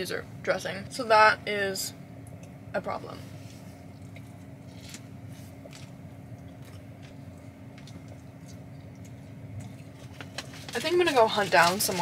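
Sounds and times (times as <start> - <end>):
low hum in car cabin: 0.0 - 12.0
chewing: 3.9 - 12.0.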